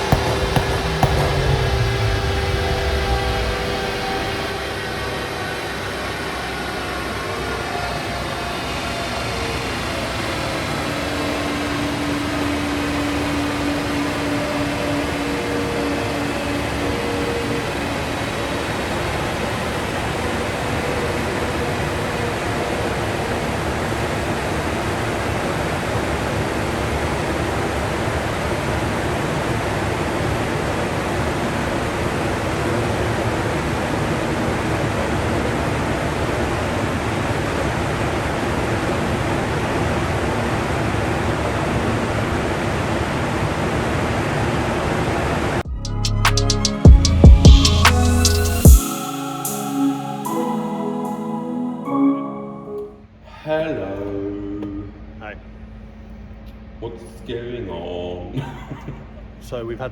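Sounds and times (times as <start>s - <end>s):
faint steady tones: 0.0s - 9.4s, 46.7s - 56.8s
cooling fan rushing air: 0.0s - 45.6s.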